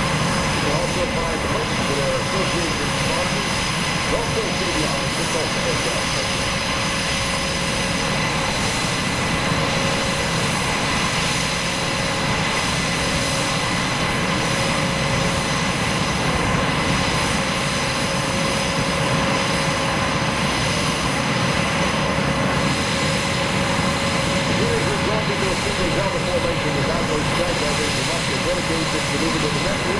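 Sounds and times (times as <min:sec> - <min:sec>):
aircraft engine rushing and whining: 0:00.0 - 0:29.9.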